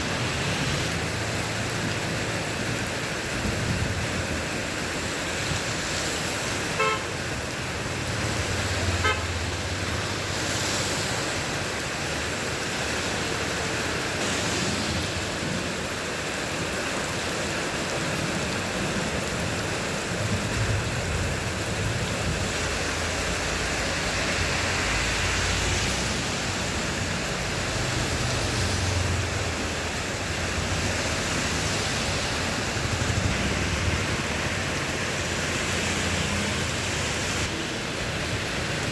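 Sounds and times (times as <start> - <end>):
heavy rain falling: 0.0 - 38.9
vehicles rumbling past: 5.8 - 17.0, 19.2 - 38.9
car horn toots: 6.8 - 7.1, 9.0 - 9.3.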